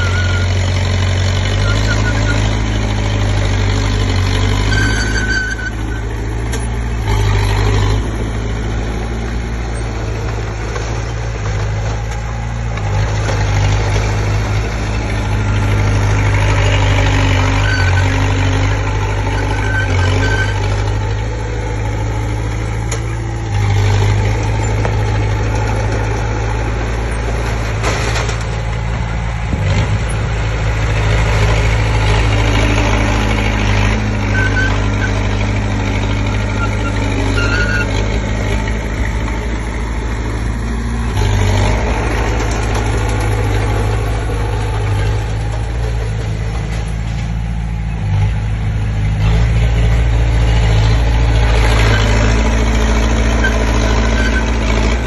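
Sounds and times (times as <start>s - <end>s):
high squeaks: 0.0s - 0.7s, 4.5s - 7.4s, 16.4s - 21.0s, 34.0s - 35.4s, 36.0s - 38.2s, 53.2s - 54.6s
bulldozer diesel engine running: 0.0s - 55.0s.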